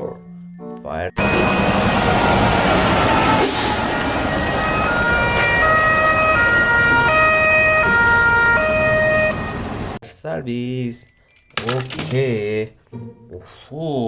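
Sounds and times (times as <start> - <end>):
electronic two-tone siren: 1.2 - 10.0.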